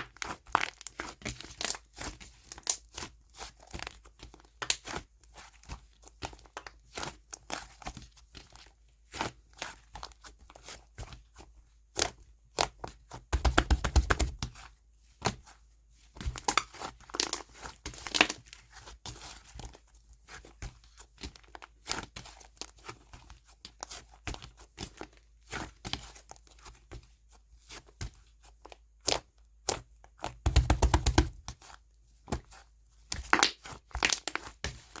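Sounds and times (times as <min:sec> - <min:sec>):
slime clicking and crackling: 0:33.1 - 0:34.5.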